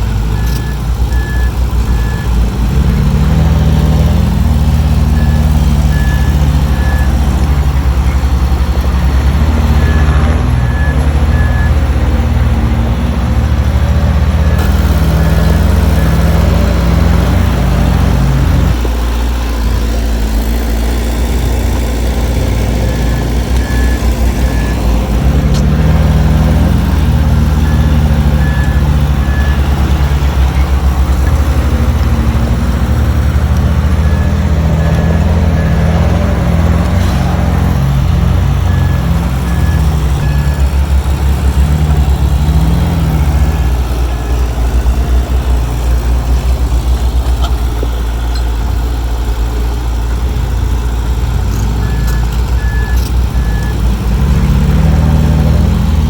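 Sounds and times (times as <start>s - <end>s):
reversing alarm beeping: 0.0s - 2.4s, 4.9s - 12.2s, 21.9s - 45.0s, 51.6s - 55.5s
bulldozer diesel engine running: 0.0s - 56.0s.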